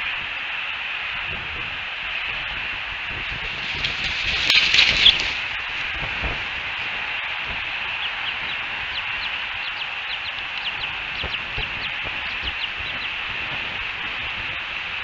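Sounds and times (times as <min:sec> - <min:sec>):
steady hiss: 0:00.0 - 0:15.0
eagle chittering: 0:03.2 - 0:15.0.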